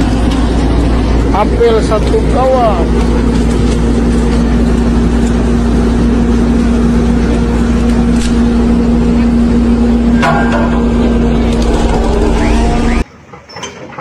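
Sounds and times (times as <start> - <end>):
heavy vehicle engine droning: 0.0 - 13.0.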